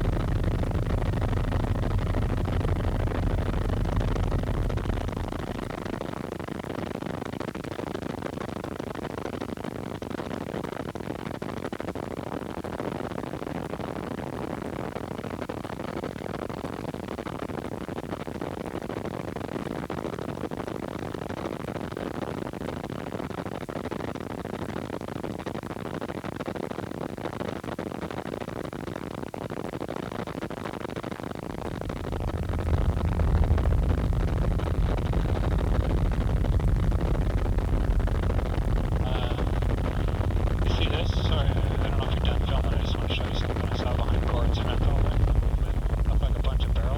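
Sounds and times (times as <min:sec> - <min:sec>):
deep low rumble: 0:00.0 - 0:06.5, 0:31.5 - 0:46.9
helicopter cabin hiss: 0:39.0 - 0:46.9.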